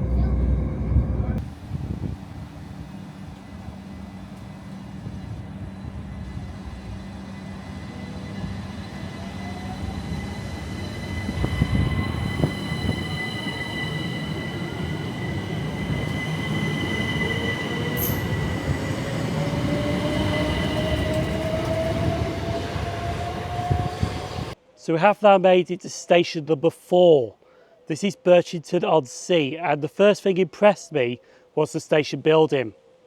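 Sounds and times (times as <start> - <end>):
electric train motor whine: 0.0 - 24.6
train rumble: 0.0 - 24.6.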